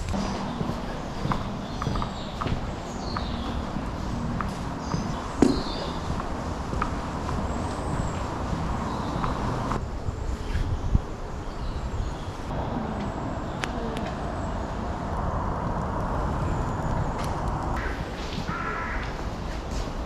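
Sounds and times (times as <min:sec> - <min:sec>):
low outdoor rumble: 0:00.0 - 0:19.9
bird harsh caw-like calls: 0:17.8 - 0:19.5.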